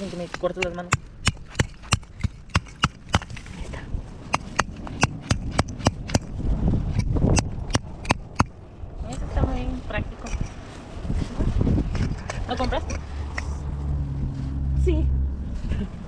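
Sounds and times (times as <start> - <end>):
hatchet striking wood: 0.4 - 3.4, 4.3 - 8.6.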